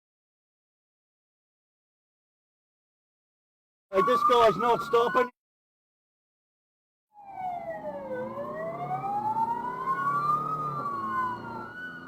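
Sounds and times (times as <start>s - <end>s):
police sirens wailing: 3.9s - 5.3s, 7.2s - 12.0s.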